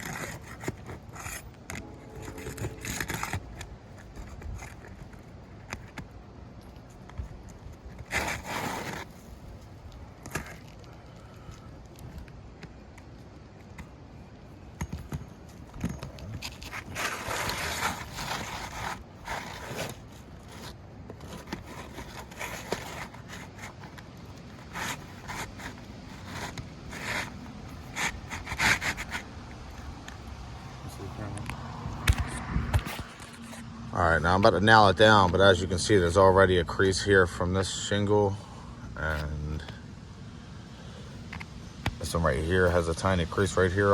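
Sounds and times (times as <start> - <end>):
roof shingles scraping: 7.5 - 11.4, 15.6 - 29.9.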